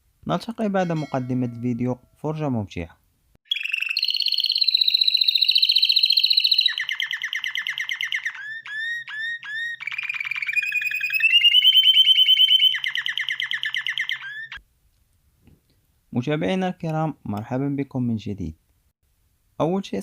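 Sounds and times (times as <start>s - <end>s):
canary singing trills: 3.4s - 14.6s.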